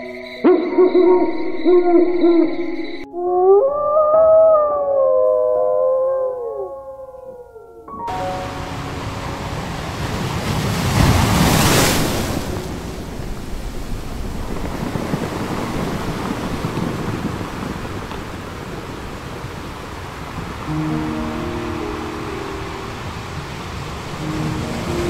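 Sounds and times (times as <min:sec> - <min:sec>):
ocean surf rushing: 0:08.1 - 0:25.0.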